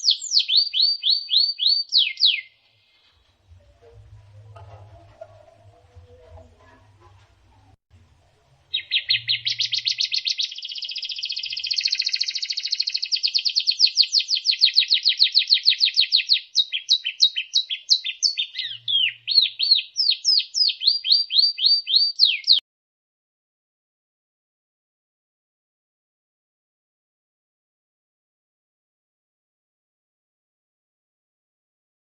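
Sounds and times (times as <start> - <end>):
bird whistled notes: 0.0 - 2.5, 8.7 - 22.6
bird song trill: 0.0 - 6.8, 8.7 - 22.6.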